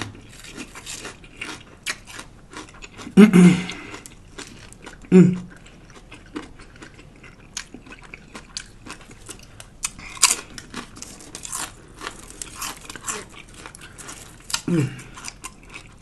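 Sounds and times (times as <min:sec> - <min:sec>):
chewing and crunching lettuce: 0:00.0 - 0:16.0.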